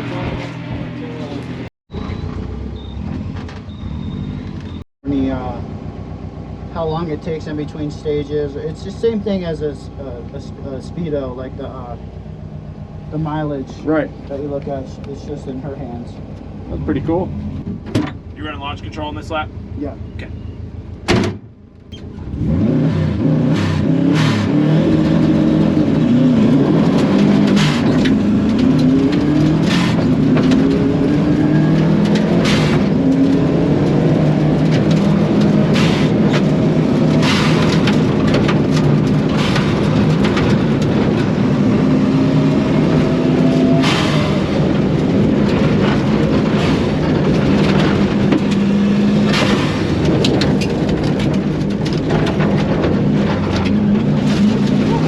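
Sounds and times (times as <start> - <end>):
rally car engine revving: 22.0 - 55.0
sharp cracks: 23.5 - 41.8.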